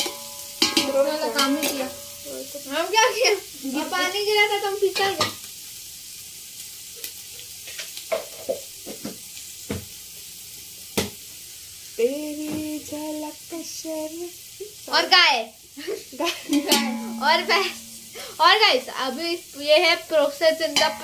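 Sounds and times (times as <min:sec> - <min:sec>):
utensils knocking on pot: 0:00.0 - 0:02.3, 0:16.5 - 0:18.0, 0:20.7 - 0:21.0
onions sizzling in pot: 0:00.0 - 0:21.0.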